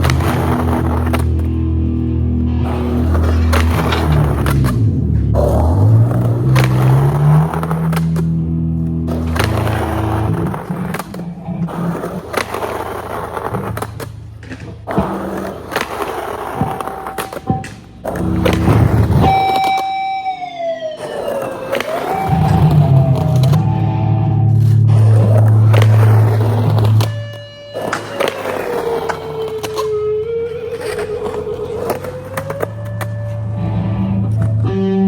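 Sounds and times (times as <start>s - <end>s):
skateboard truck scraping ledge: 0.0s - 20.2s, 21.0s - 23.7s, 24.4s - 34.6s
skateboard pops and landings: 0.0s - 23.7s, 24.5s - 34.6s
guitar music: 0.0s - 35.0s
downward gliding tone: 18.4s - 35.0s.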